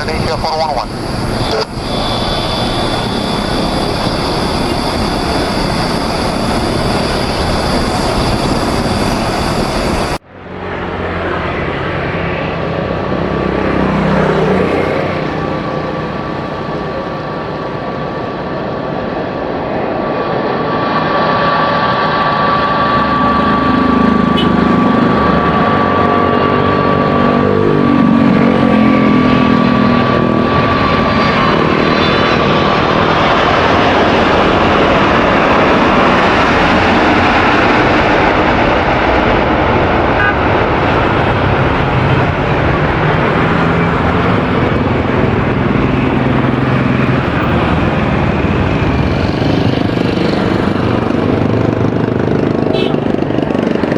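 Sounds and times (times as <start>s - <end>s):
high fan whine: 0.0s - 11.3s
jet engine rush: 0.0s - 53.9s.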